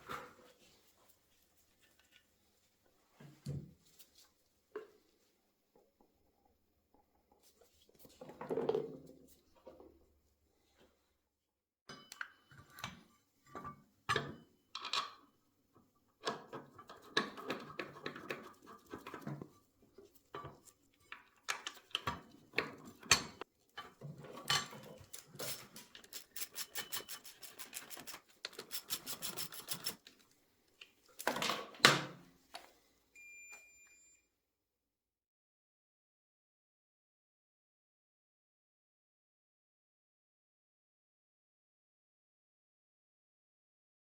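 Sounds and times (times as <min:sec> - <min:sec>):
tools and metal parts rattling: 0:24.2 - 0:30.0
short beep: 0:33.2 - 0:34.3.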